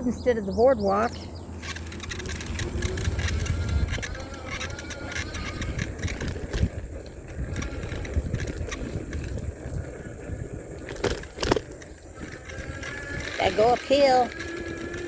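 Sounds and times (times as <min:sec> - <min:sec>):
wind on microphone: 0:00.8 - 0:15.0
sharp clicks: 0:01.1 - 0:09.8
bicycle tyre noise: 0:01.5 - 0:15.0.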